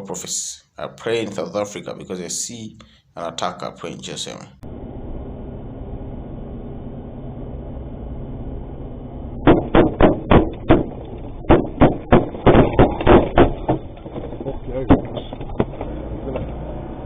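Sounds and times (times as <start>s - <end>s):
truck engine and road drone: 4.6s - 9.5s, 13.6s - 17.0s
gunfire: 9.4s - 15.3s.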